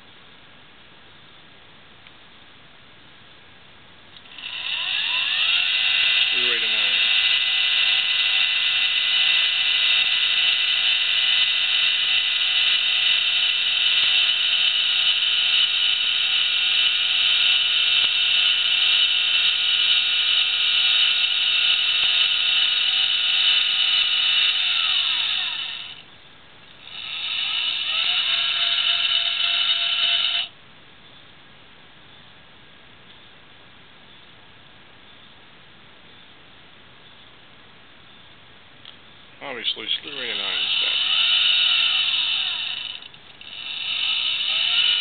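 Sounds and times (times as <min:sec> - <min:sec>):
motor drive high whine: 0:04.2 - 0:30.6, 0:39.4 - 0:45.0.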